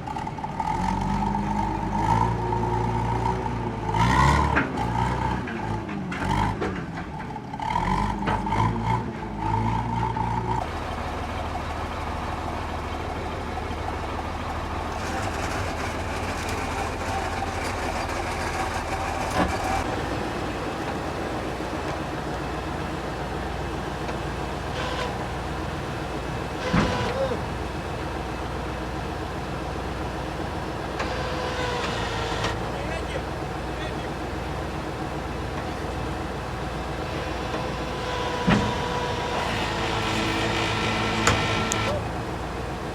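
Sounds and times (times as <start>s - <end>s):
diesel engine humming: 0.0s - 42.9s.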